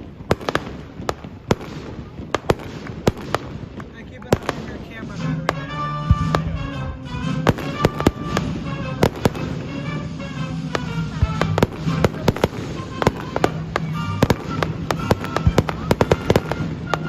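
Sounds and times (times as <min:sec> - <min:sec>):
fireworks bangs and pops: 0:00.0 - 0:17.0
music playing: 0:04.0 - 0:17.0.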